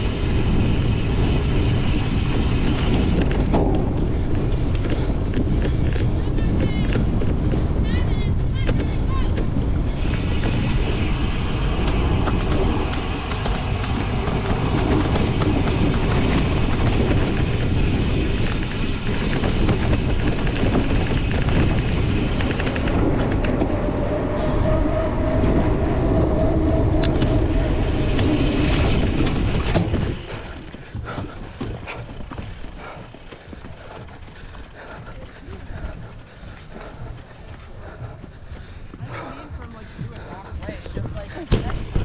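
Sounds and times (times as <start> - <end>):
bike rumbling over rough ground: 0.0 - 24.3, 26.1 - 38.4, 40.6 - 42.0
wind rushing over microphone: 0.0 - 33.1.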